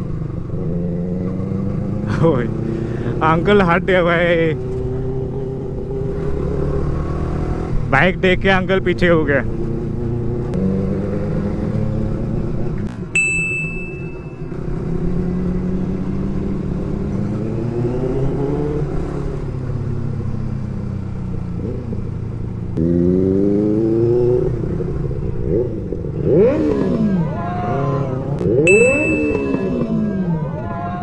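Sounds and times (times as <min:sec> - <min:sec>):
motorcycle engine revving: 0:00.0 - 0:31.0
short high ding: 0:13.0 - 0:14.6, 0:17.1 - 0:18.8, 0:28.5 - 0:30.1.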